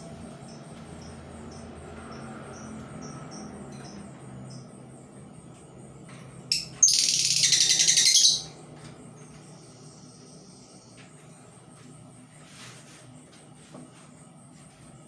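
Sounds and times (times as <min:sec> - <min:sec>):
bird chattering trill: 0:06.5 - 0:08.6.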